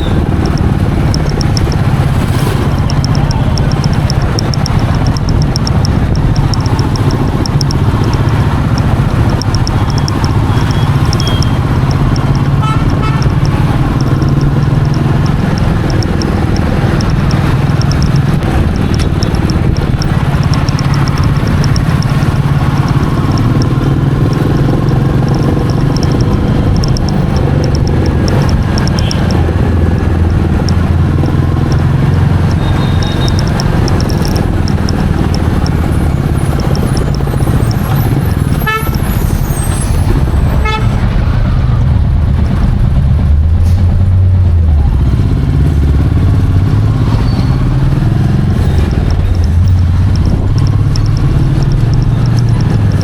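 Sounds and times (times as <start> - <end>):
horn toots: 0.0 - 41.2
motorcycle engine running: 0.0 - 53.0
rushing wind noise: 0.0 - 53.0.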